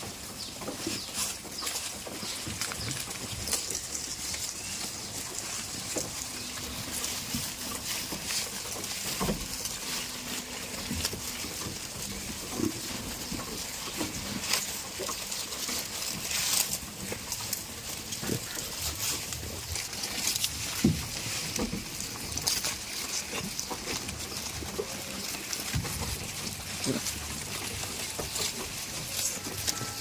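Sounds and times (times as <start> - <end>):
rustling: 0.0 - 30.0.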